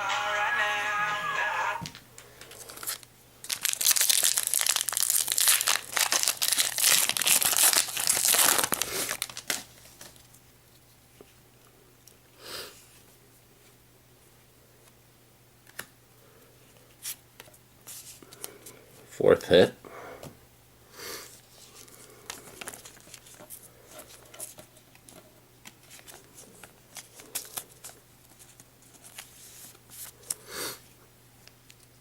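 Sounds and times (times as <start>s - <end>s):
cards rustling: 1.9s - 10.2s, 21.5s - 30.4s
foil wrapper tearing and crinkling: 2.5s - 10.2s, 22.3s - 24.2s.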